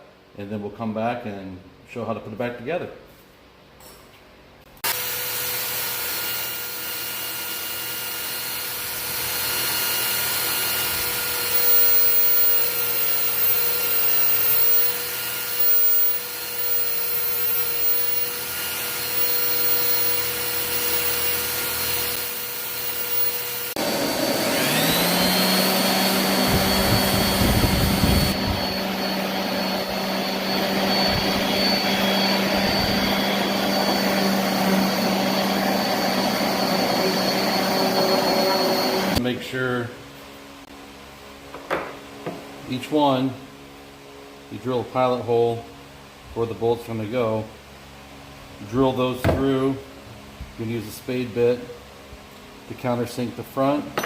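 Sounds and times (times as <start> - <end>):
motor spinning up with high whine: 4.8 - 39.2
power tool motor with faint whine: 4.8 - 39.2.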